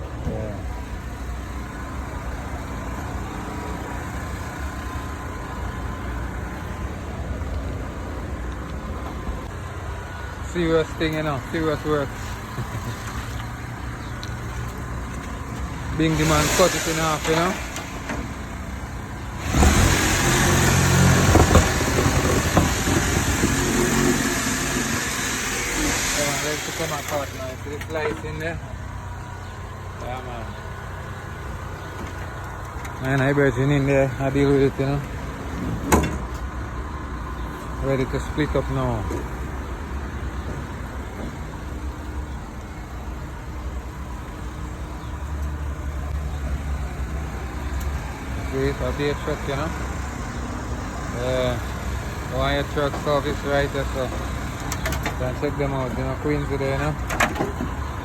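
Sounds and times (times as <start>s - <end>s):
heavy engine rumbling: 0.0s - 58.0s
heavy machine engine revving: 14.8s - 28.6s.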